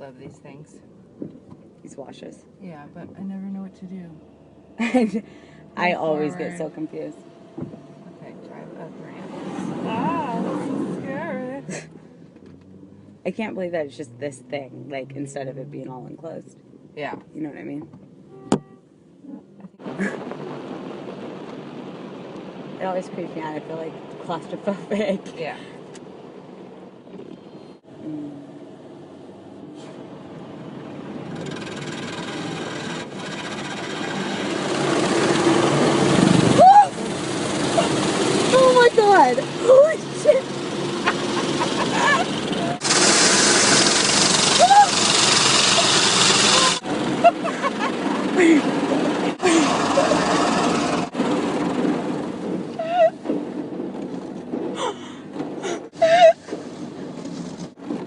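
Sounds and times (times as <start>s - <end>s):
car wash machinery running: 28.6s - 54.8s
water spraying onto car: 31.3s - 54.7s
woman shrieking: 36.5s - 37.0s, 41.8s - 42.4s, 44.5s - 45.0s, 52.8s - 53.2s, 54.8s - 56.5s.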